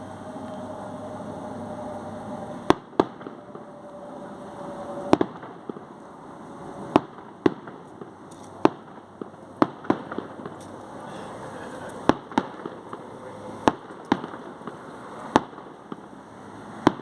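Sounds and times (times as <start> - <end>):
fireworks bangs: 1.7 - 17.0
crowd rumble: 8.9 - 16.2.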